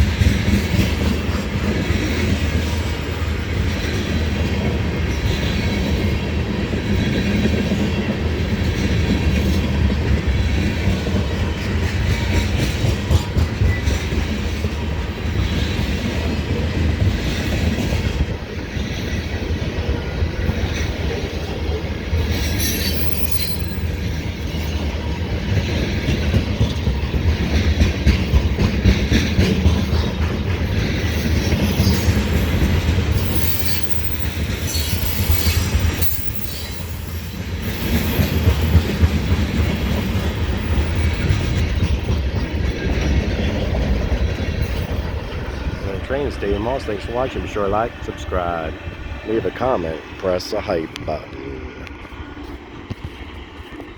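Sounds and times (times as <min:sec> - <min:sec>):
wheels clicking over rail joints: 0:00.0 - 0:45.8
freight train rolling past: 0:00.0 - 0:53.9
high wheel squeals: 0:22.2 - 0:25.3, 0:31.2 - 0:38.8.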